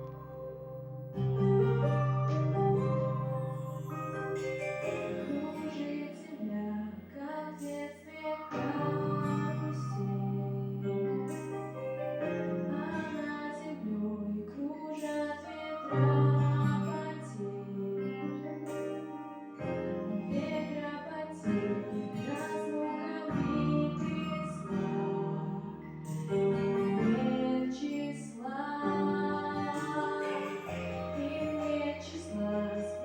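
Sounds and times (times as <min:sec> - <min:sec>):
sustained bass notes: 0:00.0 - 0:05.5
instrumental accompaniment: 0:00.0 - 0:07.2, 0:08.3 - 0:33.0
woman singing slow song: 0:04.9 - 0:33.0.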